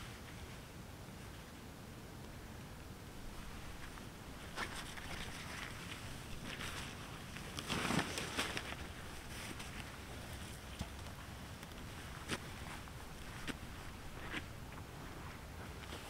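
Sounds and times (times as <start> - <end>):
low rumble of wind: 0.0 - 16.0
rustling of gear being handled: 3.4 - 16.0.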